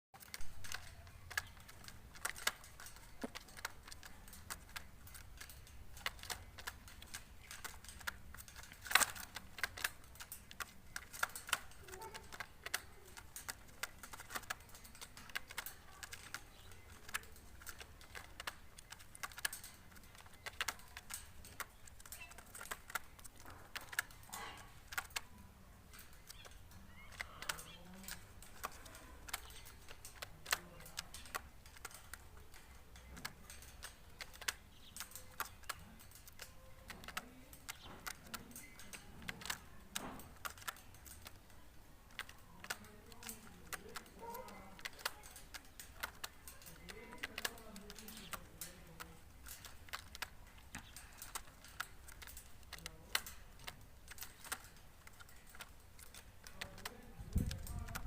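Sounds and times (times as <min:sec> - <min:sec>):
birds pecking sharp taps: 0:00.2 - 0:58.0.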